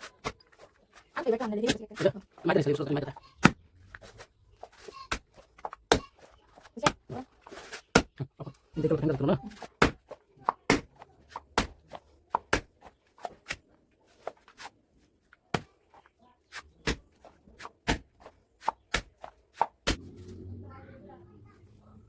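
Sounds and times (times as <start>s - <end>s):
low rumbling noise: 20.0s - 22.0s.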